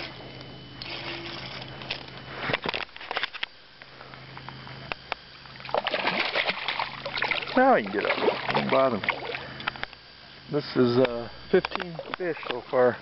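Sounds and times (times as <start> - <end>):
steady low hum: 0.0 - 13.0
fish landing knocks and splashes: 5.7 - 9.4.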